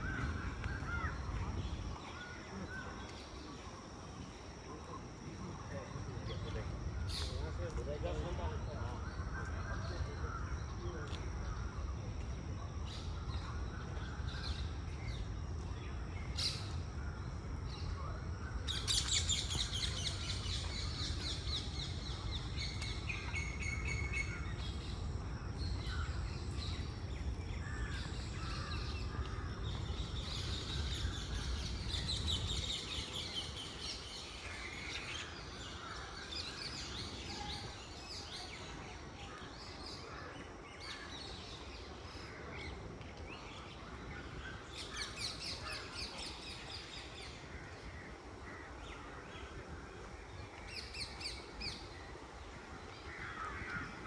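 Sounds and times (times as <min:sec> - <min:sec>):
birds chirping and calling: 0:25.6 - 0:34.4.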